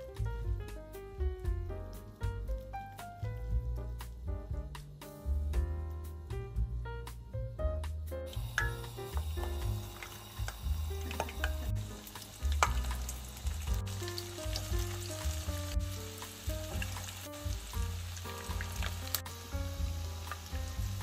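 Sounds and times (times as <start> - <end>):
background music with bass: 0.0 - 21.0
food sizzling in hot oil: 8.3 - 21.0.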